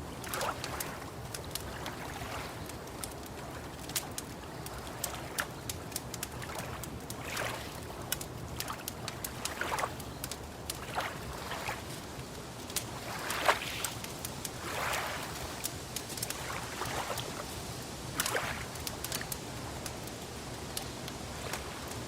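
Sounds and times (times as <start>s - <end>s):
wood fire crackling: 0.0s - 22.0s
lake water lapping: 0.1s - 19.9s, 21.3s - 21.9s.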